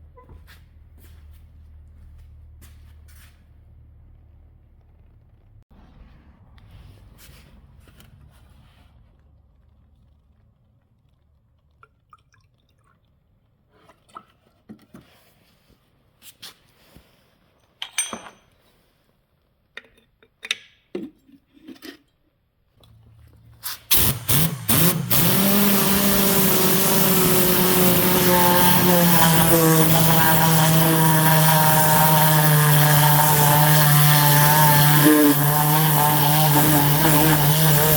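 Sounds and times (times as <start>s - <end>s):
car engine starting and running: 3.6s - 11.4s, 22.8s - 37.9s.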